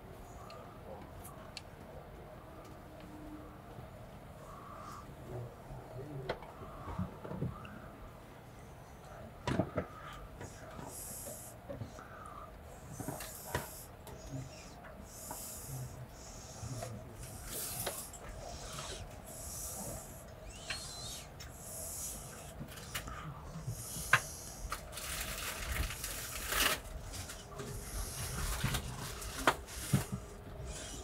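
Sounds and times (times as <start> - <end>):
hissing: 12.8 - 25.0.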